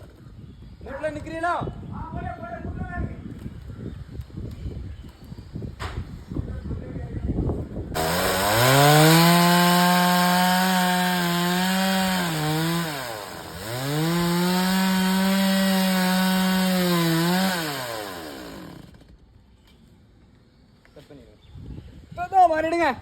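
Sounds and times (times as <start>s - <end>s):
chainsaw cutting wood: 8.0s - 19.2s.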